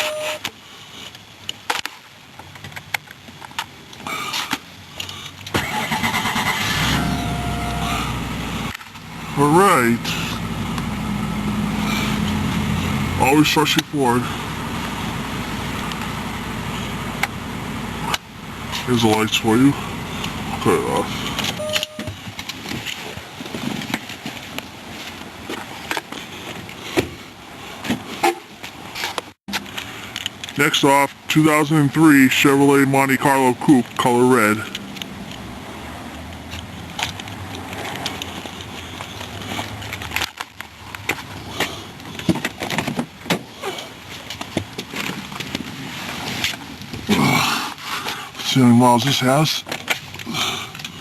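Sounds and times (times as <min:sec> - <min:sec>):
short beep: 0:00.0 - 0:00.4, 0:06.7 - 0:08.2, 0:21.6 - 0:22.2
car engine idling: 0:05.1 - 0:22.0
starter cranking: 0:05.5 - 0:10.8.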